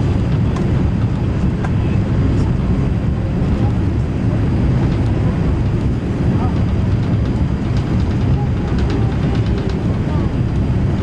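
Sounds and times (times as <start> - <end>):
aircraft cabin engine rumble: 0.0 - 11.0.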